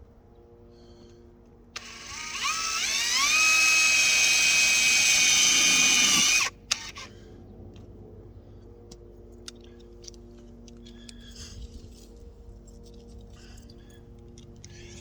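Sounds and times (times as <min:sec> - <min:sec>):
drill click: 0:01.8 - 0:07.0
cordless drill motor whine: 0:01.8 - 0:07.1.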